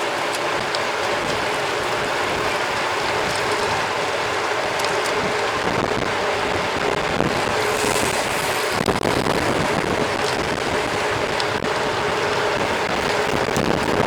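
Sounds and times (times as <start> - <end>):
bike tyres rolling: 0.0 - 14.0
wind rushing on microphone: 0.0 - 14.0.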